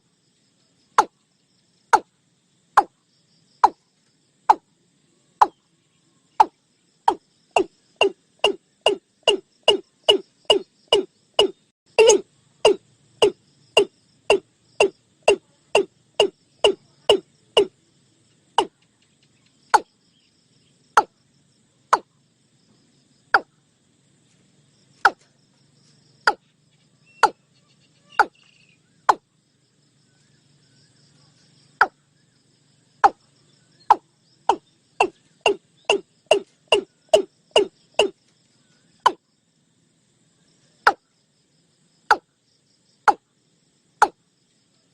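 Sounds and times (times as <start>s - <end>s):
faint high insect buzz: 0.0s - 44.9s
bird calling sharp notes: 6.4s - 17.7s, 27.1s - 29.2s, 33.9s - 38.1s.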